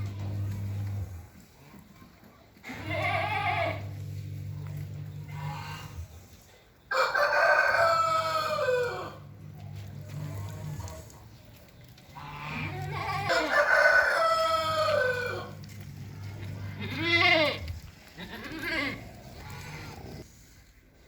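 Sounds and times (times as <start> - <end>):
low steady hum: 3.0 - 6.3, 14.0 - 20.3
rooster crowing: 6.9 - 9.3, 13.2 - 15.7.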